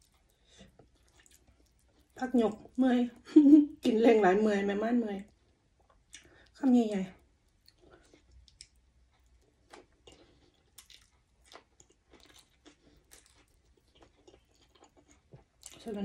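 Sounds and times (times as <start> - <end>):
person chewing food: 0.0 - 2.2, 5.3 - 6.6, 7.4 - 16.0.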